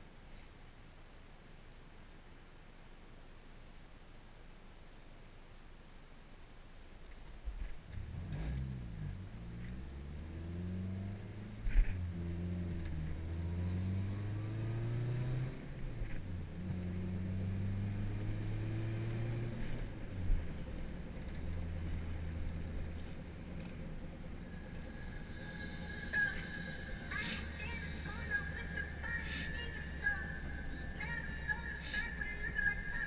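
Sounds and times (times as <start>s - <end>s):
car engine accelerating: 7.9s - 33.0s.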